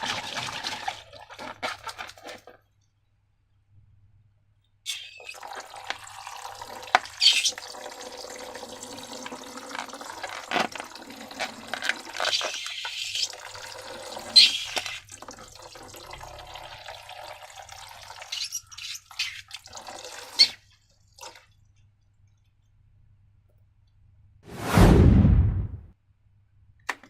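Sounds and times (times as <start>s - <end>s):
liquid pouring and splashing: 0.0s - 2.4s, 5.2s - 22.5s.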